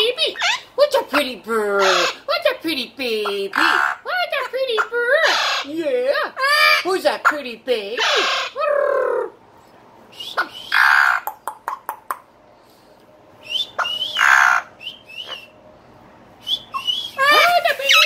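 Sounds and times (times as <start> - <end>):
parrot rasping calls: 0.3 - 0.7, 1.8 - 2.3, 3.2 - 4.1, 4.8 - 5.8, 6.4 - 7.0, 8.0 - 9.3, 10.3 - 11.4, 13.7 - 15.5, 16.6 - 18.0
parrot chirps and clicks: 11.2 - 12.3.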